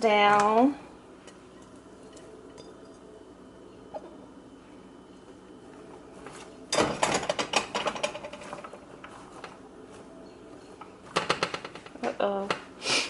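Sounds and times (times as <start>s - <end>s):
vegetables clattering on metal pan: 6.7s - 8.8s.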